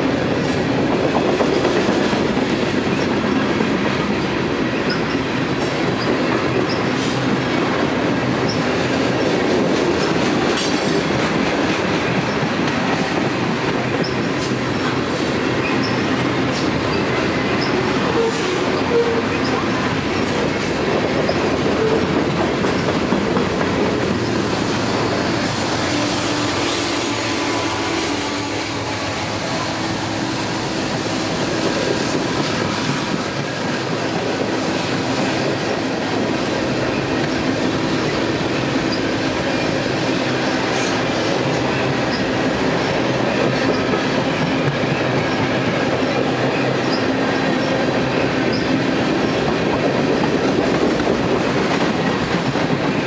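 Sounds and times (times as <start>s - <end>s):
train wheels rumbling on rail: 0.0s - 53.0s
wheel squeal: 48.4s - 48.8s.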